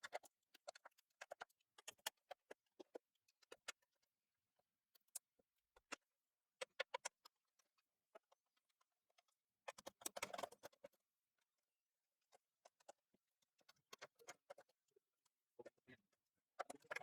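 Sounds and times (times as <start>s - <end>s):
clicks and taps of small parts: 0.0s - 3.9s, 6.6s - 11.0s, 12.3s - 14.8s, 16.6s - 17.0s.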